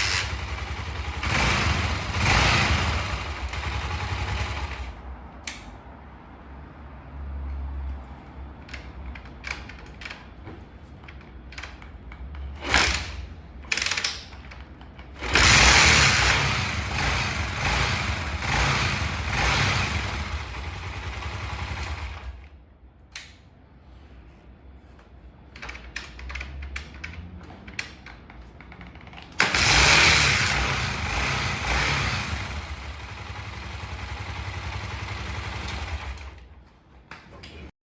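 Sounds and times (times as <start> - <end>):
motorcycle engine running: 0.0 - 5.0, 15.2 - 22.3, 29.5 - 36.4.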